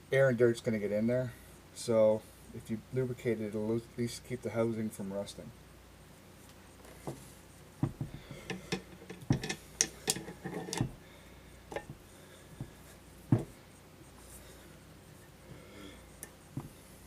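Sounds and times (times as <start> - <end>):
metal tools clicking and knocking: 8.4 - 11.0.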